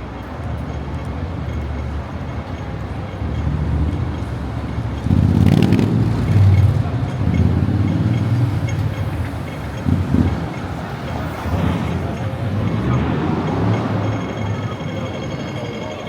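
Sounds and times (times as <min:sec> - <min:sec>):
road traffic rumble: 0:00.0 - 0:16.0
heavy vehicle passing: 0:03.4 - 0:16.0.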